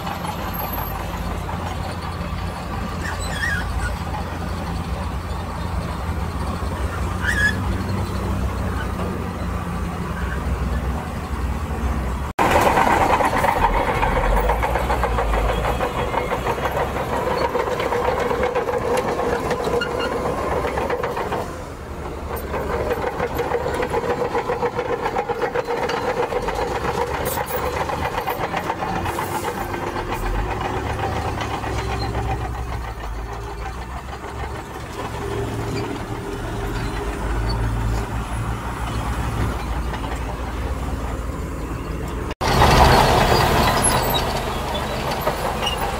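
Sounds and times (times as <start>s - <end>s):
diesel engine under load: 0.0s - 45.9s.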